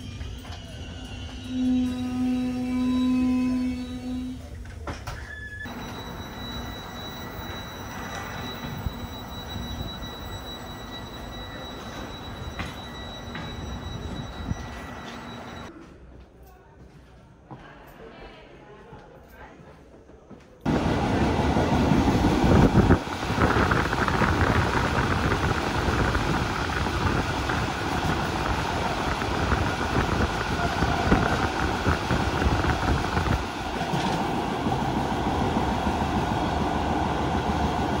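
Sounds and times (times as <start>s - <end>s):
train wheels rumbling on rail: 5.7s - 15.7s, 20.7s - 38.0s
rushing air: 20.7s - 35.4s.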